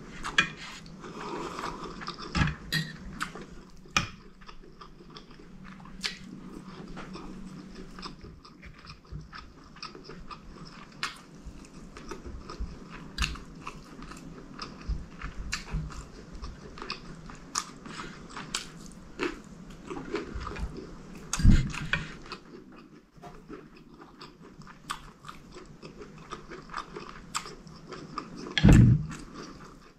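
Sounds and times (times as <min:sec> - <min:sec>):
close chewing and mouth sounds: 0:00.0 - 0:29.9
low thump: 0:28.6 - 0:29.1.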